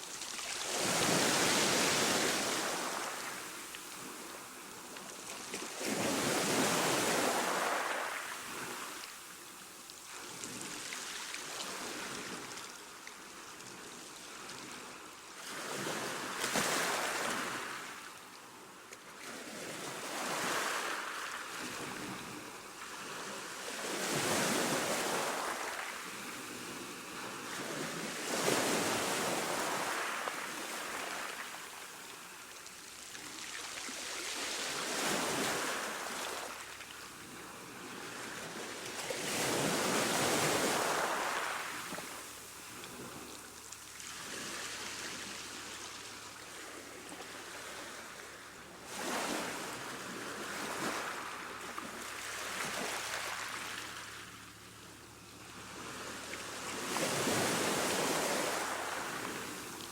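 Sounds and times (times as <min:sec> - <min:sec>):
ocean waves breaking on shore: 0:00.0 - 0:09.0, 0:19.2 - 0:32.4, 0:33.1 - 0:54.4, 0:55.6 - 0:59.9.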